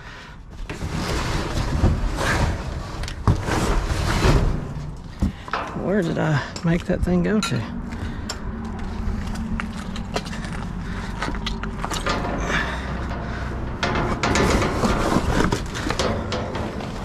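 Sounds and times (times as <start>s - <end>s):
junk clattering and rustling: 0.5s - 17.0s
steady low hum: 3.8s - 17.0s.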